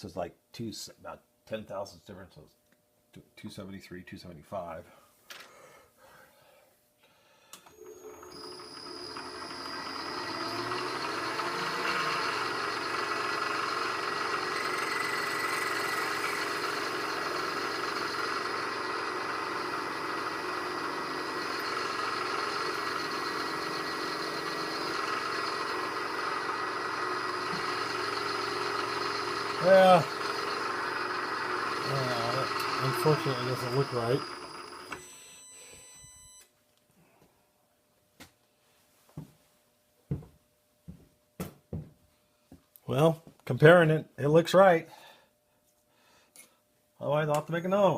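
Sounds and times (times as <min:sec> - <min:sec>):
spindle motor whining: 0:07.6 - 0:36.4.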